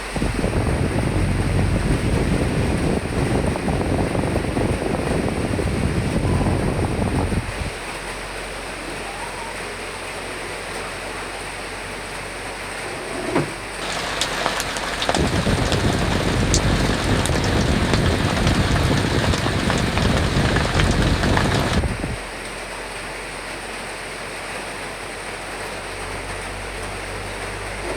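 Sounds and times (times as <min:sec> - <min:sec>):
rain with wind: 0:00.0 - 0:27.9
raindrops pattering: 0:13.6 - 0:22.7.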